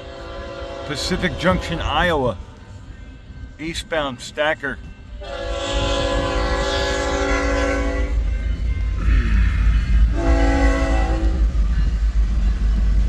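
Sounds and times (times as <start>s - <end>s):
locomotive air horn: 0.0s - 1.8s, 5.2s - 8.3s, 9.0s - 11.6s
train rumbling: 0.0s - 13.0s.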